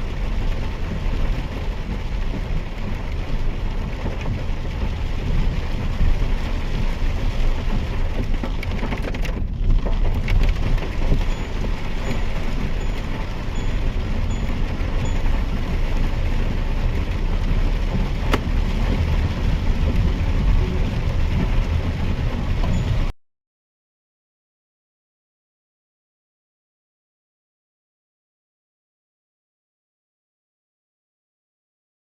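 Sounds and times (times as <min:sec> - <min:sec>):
car engine rumble: 0:00.0 - 0:23.1
rain hissing on car body: 0:00.0 - 0:23.1
wet tyres on road: 0:00.0 - 0:23.1.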